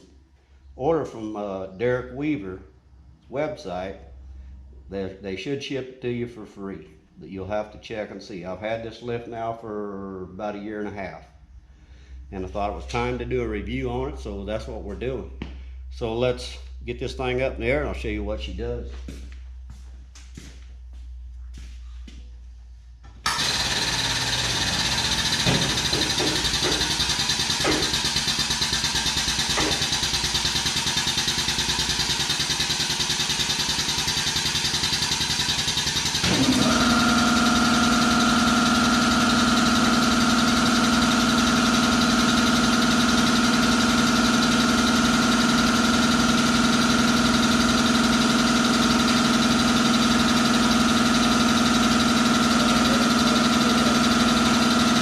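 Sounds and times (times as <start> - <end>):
air compressor running: 11.5 - 55.0.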